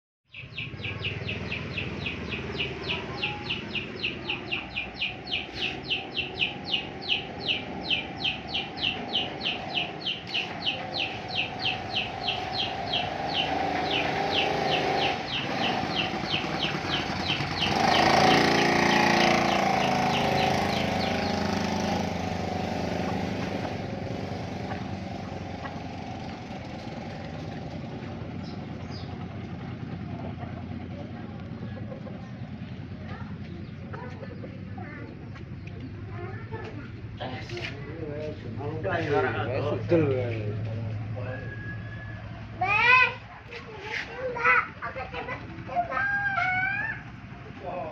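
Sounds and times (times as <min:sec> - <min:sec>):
high chirps: 0:00.3 - 0:27.7
boat motor running: 0:00.3 - 0:37.3.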